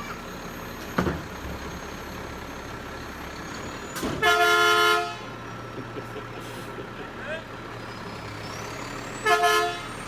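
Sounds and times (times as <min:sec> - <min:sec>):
truck horn toot: 0:04.1 - 0:05.3, 0:09.2 - 0:10.0.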